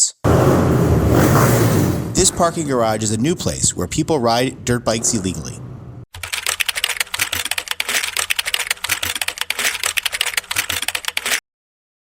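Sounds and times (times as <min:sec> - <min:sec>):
rapid clicking clatter: 0:06.1 - 0:11.4.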